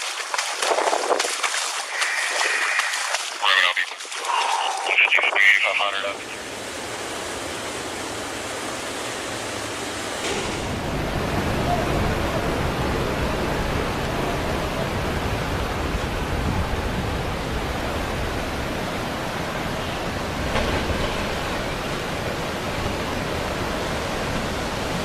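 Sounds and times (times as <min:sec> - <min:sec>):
splash or knock: 0:00.0 - 0:04.5
floodwater rushing: 0:00.0 - 0:25.0.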